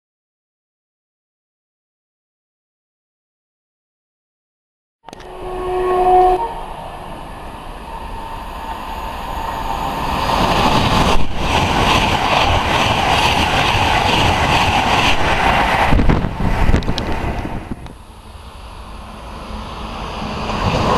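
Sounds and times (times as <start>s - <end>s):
train horn blast: 5.1s - 6.8s
train passing at speed: 5.1s - 20.9s.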